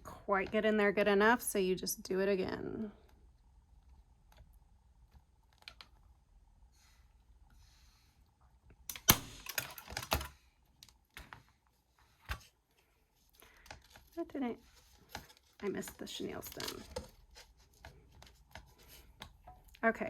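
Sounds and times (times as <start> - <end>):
small clicks and rustling: 3.0 - 6.1, 8.9 - 19.8.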